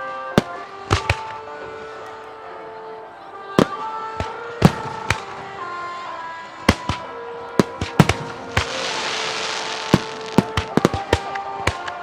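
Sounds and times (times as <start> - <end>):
crackling fireworks sparks: 0.0 - 1.6, 3.6 - 12.0
music with held notes: 0.0 - 12.0
firework shells bursting: 0.4 - 1.4, 3.6 - 5.8, 6.7 - 12.0.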